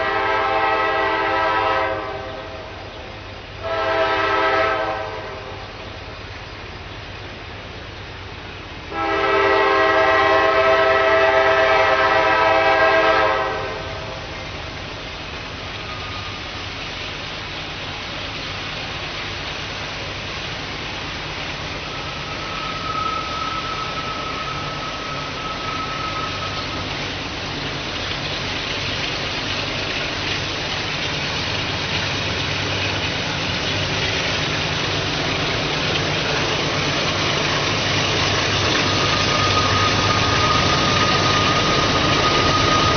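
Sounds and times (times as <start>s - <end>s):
locomotive air horn chord: 0.0s - 2.8s, 3.6s - 5.7s, 8.9s - 14.3s
approaching train engine and rails: 0.0s - 42.9s.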